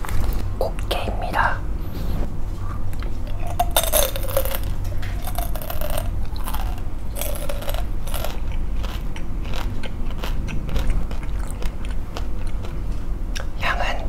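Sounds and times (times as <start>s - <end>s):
person chewing crunchy snack: 2.7s - 13.6s.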